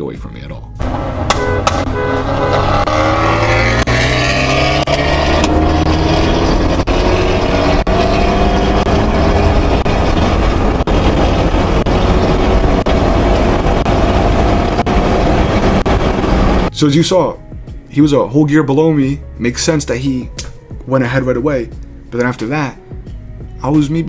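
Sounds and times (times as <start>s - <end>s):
car engine revving: 0.8s - 16.7s.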